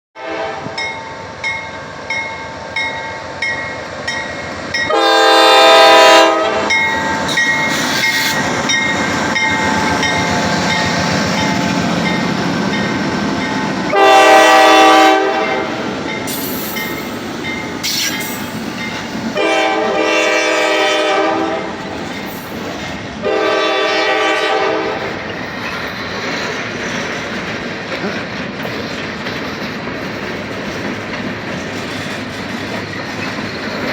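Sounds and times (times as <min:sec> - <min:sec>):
locomotive horn blasts: 0:00.2 - 0:00.9, 0:04.9 - 0:07.3, 0:13.9 - 0:15.8, 0:19.4 - 0:21.8, 0:23.2 - 0:25.1
freight train rumble and clatter: 0:00.2 - 0:33.9.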